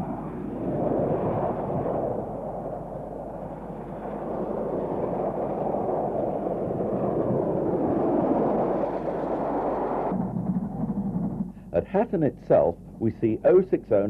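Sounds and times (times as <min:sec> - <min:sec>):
steam locomotive rushing: 0:07.8 - 0:13.3.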